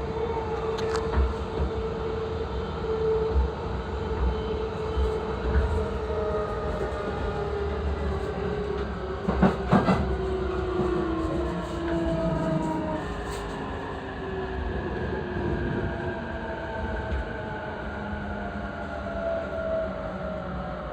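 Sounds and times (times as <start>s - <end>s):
train running rumble: 4.2s - 14.0s.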